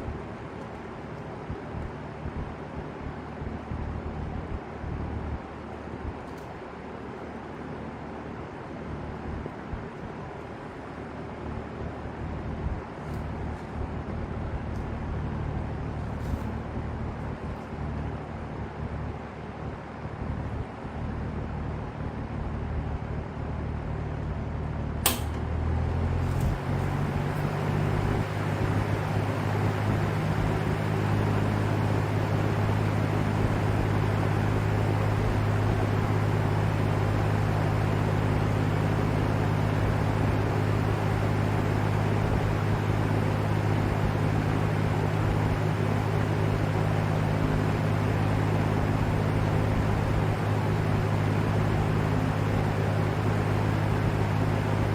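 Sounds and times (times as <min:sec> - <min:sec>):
box fan humming: 0:00.0 - 0:54.9
fan air whooshing: 0:00.0 - 0:54.9
fan switch click: 0:25.0 - 0:25.5.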